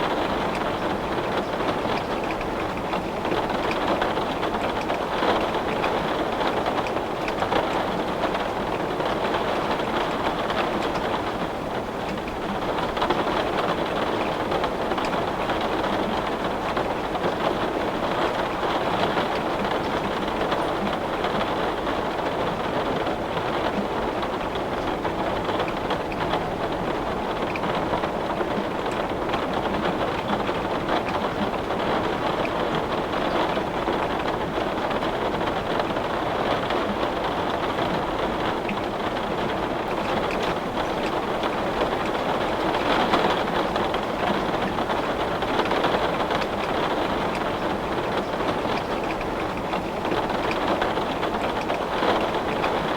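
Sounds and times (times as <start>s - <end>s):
heavy rain on window glass: 0.0s - 52.9s.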